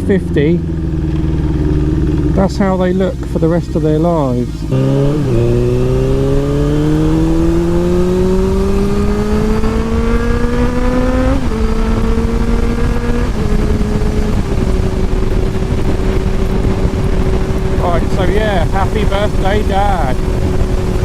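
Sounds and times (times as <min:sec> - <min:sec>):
motorcycle engine revving: 0:00.0 - 0:21.0
wind noise on microphone: 0:04.4 - 0:21.0.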